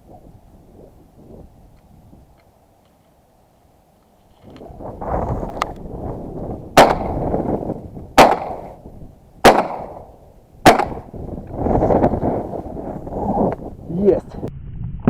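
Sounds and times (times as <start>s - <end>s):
shotgun shots: 6.8s - 7.3s, 8.2s - 8.8s, 9.4s - 11.1s.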